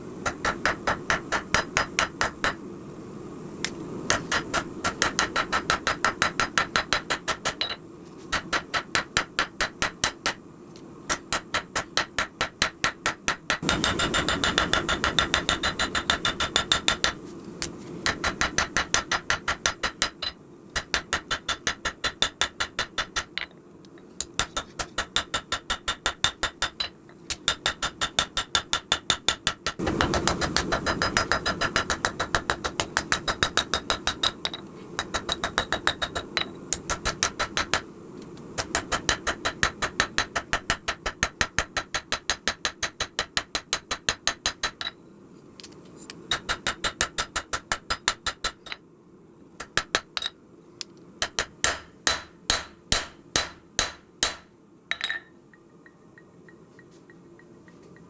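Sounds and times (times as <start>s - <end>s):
hammer striking steel on anvil: 11.1s - 17.2s, 51.2s - 56.0s.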